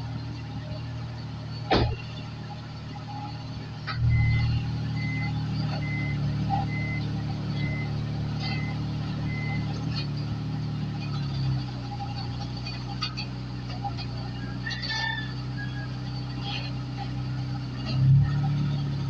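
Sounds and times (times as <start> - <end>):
vehicle engine starting and running: 0.0 - 19.0
electronic warning beeps: 4.0 - 9.7.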